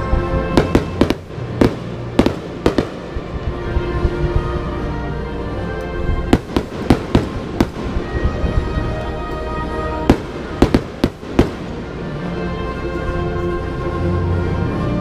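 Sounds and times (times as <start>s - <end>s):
music: 0.0s - 15.0s
firework shells bursting: 6.4s - 8.7s, 10.0s - 11.9s.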